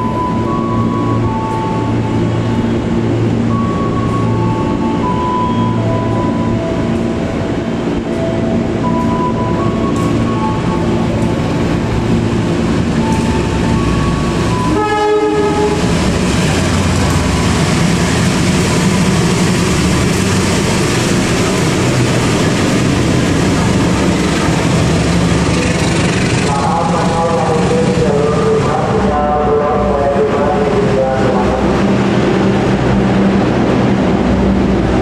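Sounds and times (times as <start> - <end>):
train wheels on rail: 0.0 - 29.1
train horn blast: 14.5 - 16.0.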